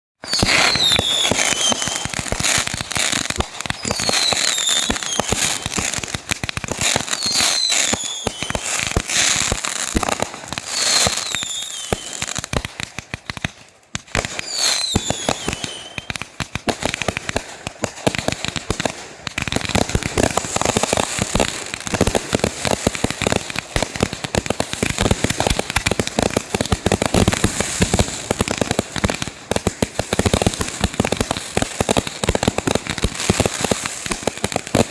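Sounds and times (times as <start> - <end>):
falling firework whistle: 0.2 - 5.9, 6.8 - 12.3, 14.4 - 16.2
fireworks crackling and popping: 0.2 - 34.9.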